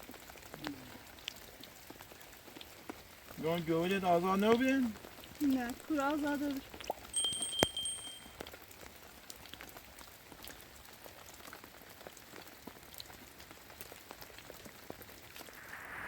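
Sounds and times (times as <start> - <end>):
drops ticking and pattering: 0.0 - 10.6
rain falling: 0.0 - 16.0
high steady tone: 7.2 - 8.3.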